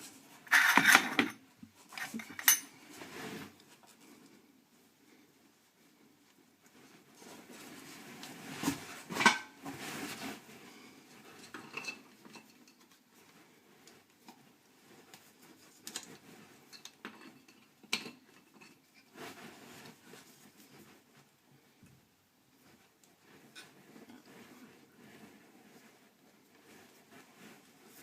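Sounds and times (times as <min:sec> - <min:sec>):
hard objects clinking together: 0:00.5 - 0:01.4.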